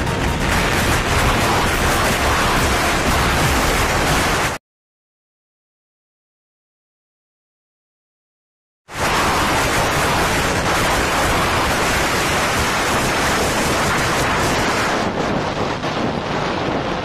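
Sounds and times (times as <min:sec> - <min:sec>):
wind buffeting microphone: 0:09.0 - 0:17.0.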